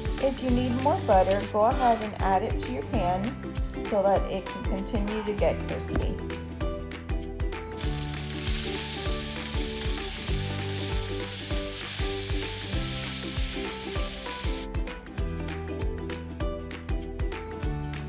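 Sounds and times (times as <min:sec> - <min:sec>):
chicken sizzling in a pan: 0:00.0 - 0:02.2, 0:07.8 - 0:14.7
background music with steady beat: 0:00.0 - 0:18.0.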